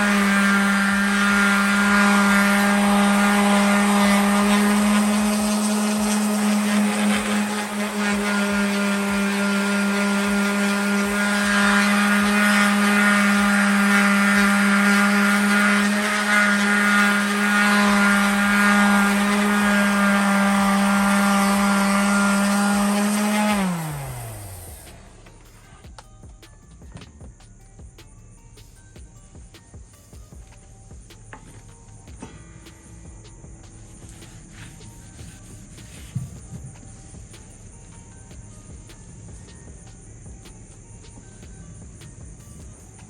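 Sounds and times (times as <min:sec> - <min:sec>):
power tool motor whining: 0:00.0 - 0:26.0.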